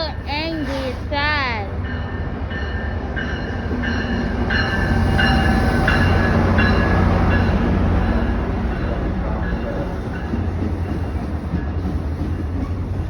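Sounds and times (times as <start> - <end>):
train rail rumble: 0.0 - 13.0.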